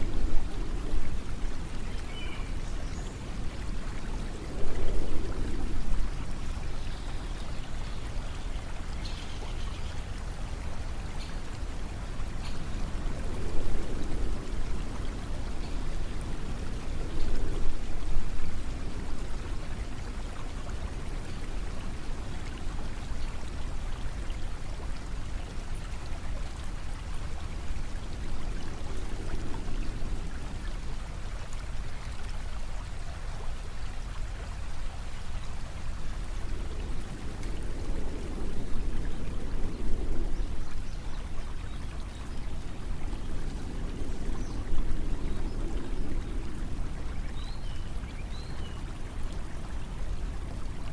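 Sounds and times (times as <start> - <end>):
flowing water rushing: 0.0 - 50.9.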